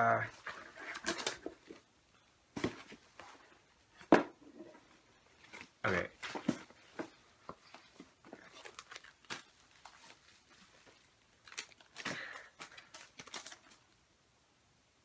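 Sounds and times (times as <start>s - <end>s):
packaging crinkling and rustling: 5.4s - 14.0s.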